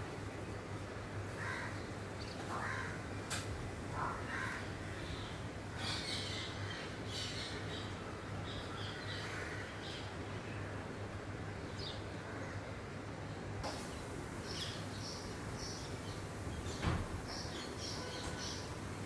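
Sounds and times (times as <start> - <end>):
birds calling: 1.3 - 3.2, 3.8 - 10.2, 13.6 - 19.0.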